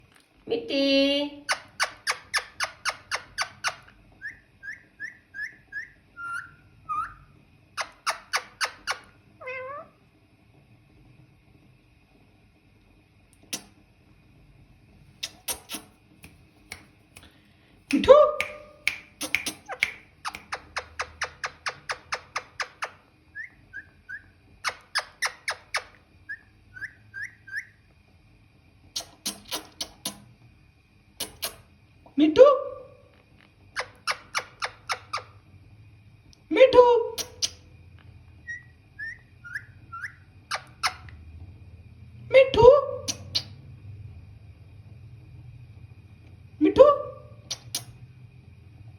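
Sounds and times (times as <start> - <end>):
parrot clicking: 1.5 - 3.9, 18.4 - 23.0, 24.6 - 26.0, 29.0 - 30.3, 33.8 - 35.3, 39.5 - 41.2
parrot chirping whistles: 1.5 - 9.8, 18.5 - 27.8, 33.7 - 35.4, 38.4 - 41.2.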